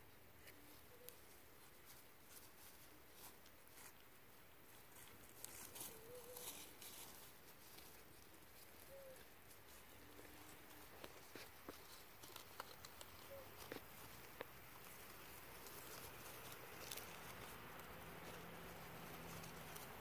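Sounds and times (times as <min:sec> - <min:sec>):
puppy paws clicking: 0:04.7 - 0:20.0.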